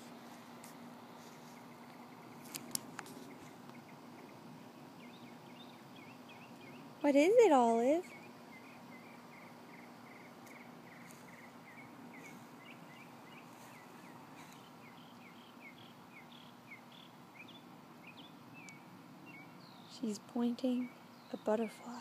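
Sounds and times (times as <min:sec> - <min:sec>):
low steady hum: 0:00.0 - 0:22.0
bird chirping: 0:01.2 - 0:22.0.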